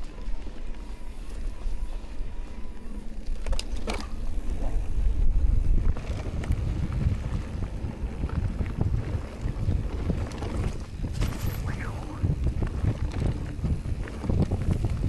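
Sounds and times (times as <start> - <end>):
bike rolling on dirt trail: 0.0 - 15.0
wind buffeting microphone: 4.2 - 15.0.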